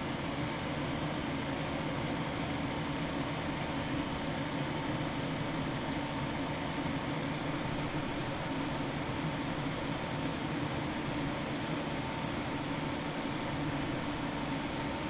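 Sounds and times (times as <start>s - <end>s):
fan hum and hiss: 0.0s - 15.0s.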